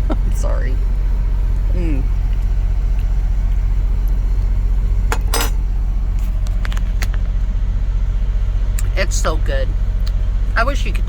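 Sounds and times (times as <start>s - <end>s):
truck idling: 0.0s - 11.0s.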